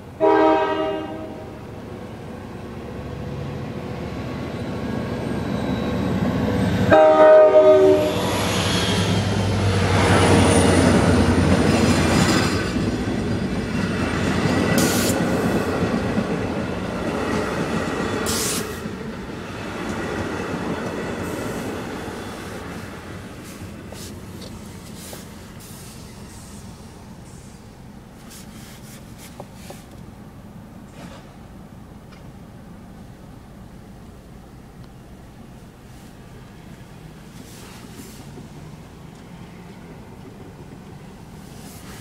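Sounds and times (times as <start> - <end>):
train wheels rumbling on rail: 0.0 - 30.1, 30.7 - 32.9, 35.0 - 42.0
locomotive chord horn: 0.2 - 1.6, 6.9 - 8.3.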